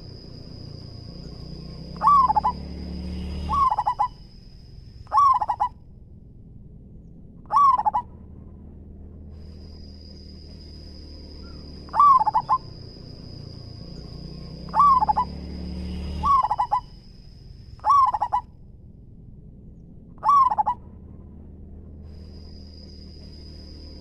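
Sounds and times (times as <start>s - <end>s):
faint high whine: 0.0s - 20.2s, 20.8s - 24.0s
dove cooing: 1.7s - 2.7s, 3.3s - 4.2s, 5.1s - 5.8s, 7.5s - 8.1s, 11.4s - 12.9s, 14.6s - 15.4s, 16.2s - 17.0s, 17.8s - 18.5s, 20.2s - 20.8s.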